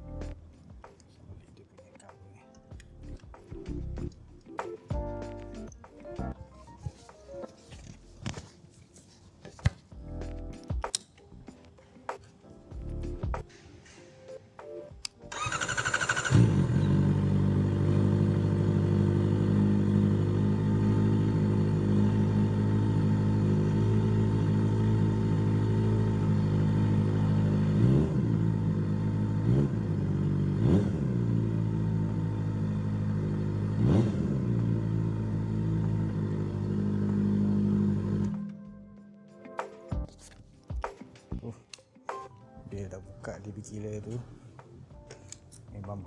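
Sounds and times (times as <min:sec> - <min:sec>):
motorcycle engine idling and revving: 0:15.3 - 0:38.6.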